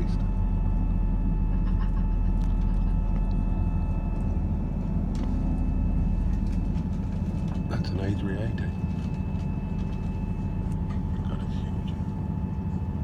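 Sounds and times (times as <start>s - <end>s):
vehicle rumble and hum: 0.0s - 13.0s.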